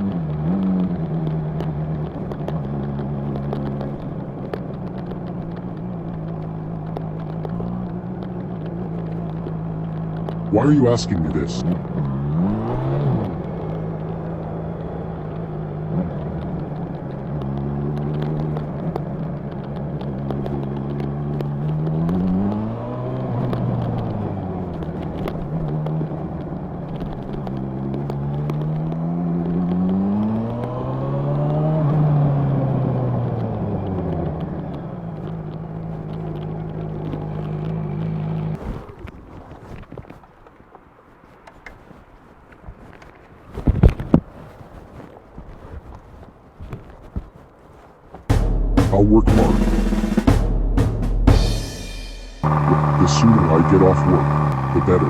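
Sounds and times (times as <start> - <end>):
motorcycle engine revving: 11.7 - 16.7, 48.3 - 55.0.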